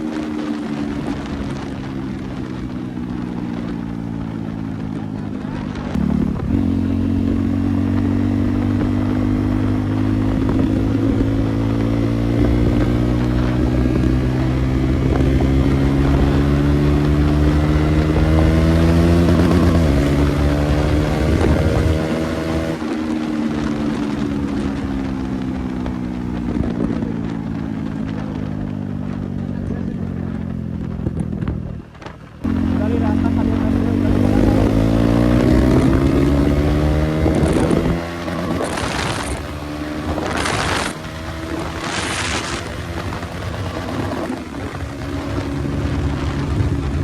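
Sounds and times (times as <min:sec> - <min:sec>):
loud motorcycle engine: 0:00.0 - 0:47.0.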